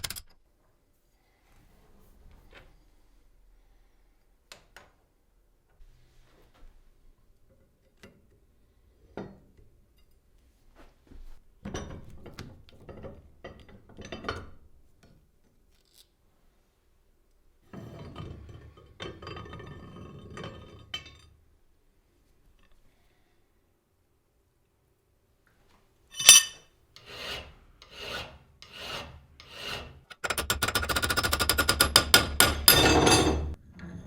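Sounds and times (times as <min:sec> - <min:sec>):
metal parts clinking and rattling: 0:00.0 - 0:00.3, 0:26.1 - 0:26.6.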